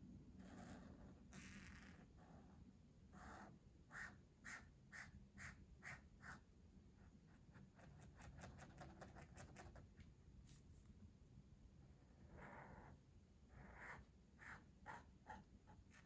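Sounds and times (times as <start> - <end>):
coloring strokes scratching paper: 13.5 - 16.0.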